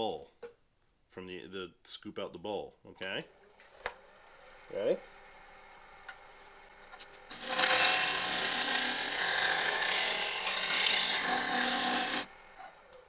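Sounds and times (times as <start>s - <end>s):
lathe tool cutting wood: 7.3s - 12.3s.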